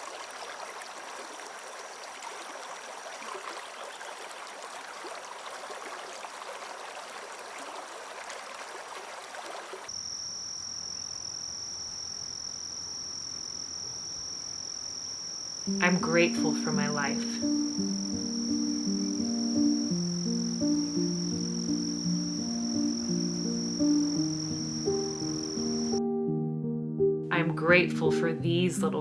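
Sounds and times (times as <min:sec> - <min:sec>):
small stream trickling: 0:00.0 - 0:10.0
high insect trill: 0:09.9 - 0:26.0.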